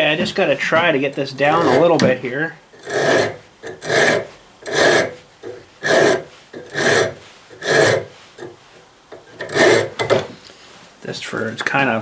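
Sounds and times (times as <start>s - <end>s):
hand file rasping on metal: 1.0s - 2.0s, 2.7s - 10.2s.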